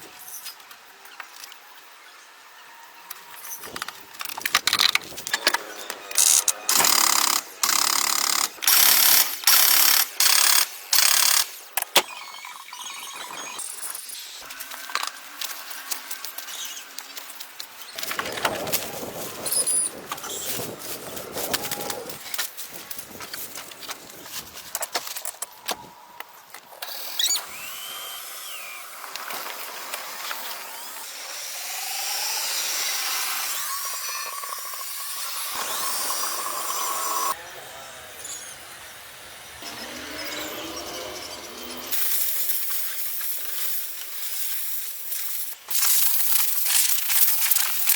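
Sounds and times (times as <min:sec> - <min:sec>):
tool whirring: 0:03.5 - 0:12.4, 0:26.8 - 0:37.4, 0:38.0 - 0:42.1
power tool bursts: 0:05.3 - 0:12.6.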